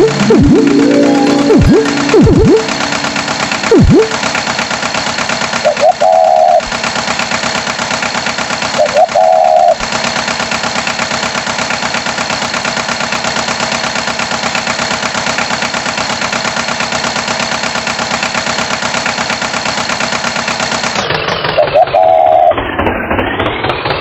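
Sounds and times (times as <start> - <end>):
brief loud tone: 0.0 - 4.3
cartoon tractor engine chugging: 0.0 - 24.0.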